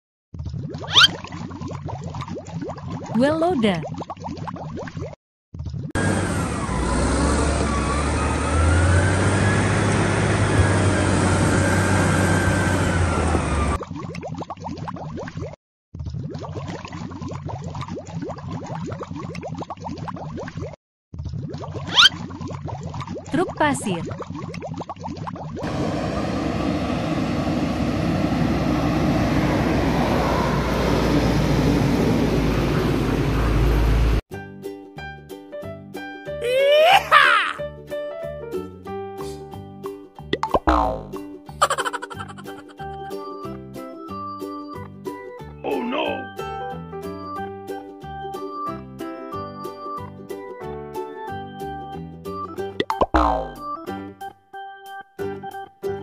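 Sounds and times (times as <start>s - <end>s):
dump truck passing: 6.0s - 13.8s, 25.6s - 34.2s
wheel loader diesel engine under load: 6.0s - 13.8s, 25.6s - 34.2s.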